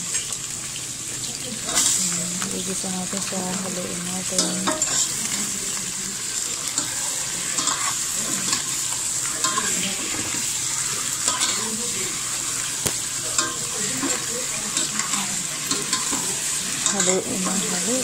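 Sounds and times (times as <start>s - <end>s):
chicken sizzling in hot oil: 0.0s - 18.0s
utensil scraping and knocking pot: 6.8s - 11.7s.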